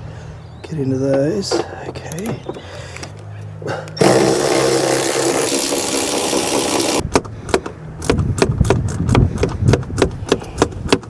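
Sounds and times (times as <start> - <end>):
socket ratchet clicking: 2.1 - 3.2.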